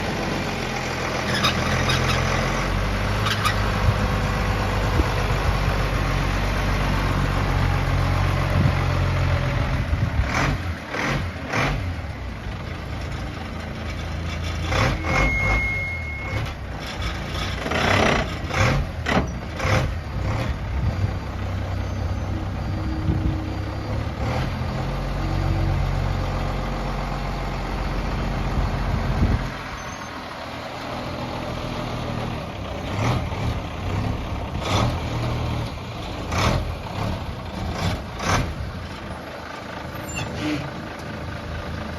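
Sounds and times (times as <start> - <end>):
diesel engine running: 0.0 - 41.9
short beep: 14.9 - 16.5.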